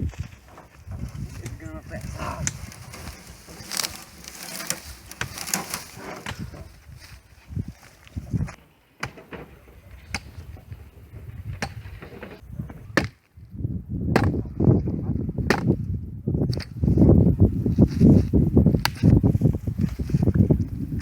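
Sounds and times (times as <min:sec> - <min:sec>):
axe chopping firewood: 0:03.7 - 0:06.7, 0:08.5 - 0:10.6, 0:11.6 - 0:13.3, 0:14.1 - 0:14.4, 0:15.4 - 0:15.8, 0:16.5 - 0:16.8, 0:18.8 - 0:19.2.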